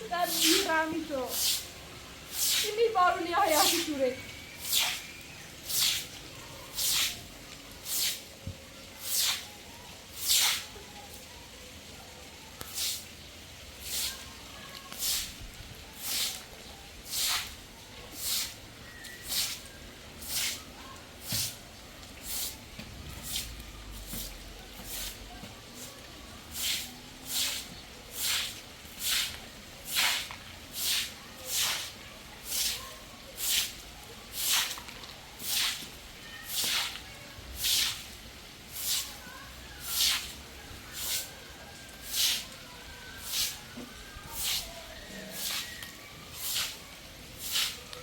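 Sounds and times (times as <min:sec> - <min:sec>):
hissing swish strokes: 0:01.3 - 0:01.6, 0:04.6 - 0:05.1, 0:05.7 - 0:06.1.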